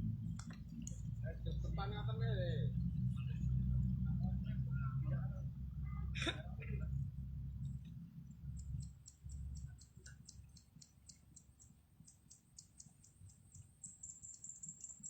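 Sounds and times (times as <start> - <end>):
high-pitched ticking: 8.4 - 15.0.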